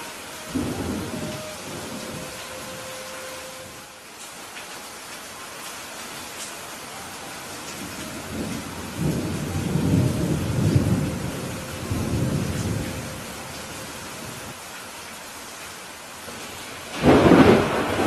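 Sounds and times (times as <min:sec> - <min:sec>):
thunder rumble: 0:00.0 - 0:03.9, 0:07.7 - 0:14.5, 0:16.9 - 0:18.0
steady rainfall: 0:00.0 - 0:18.0.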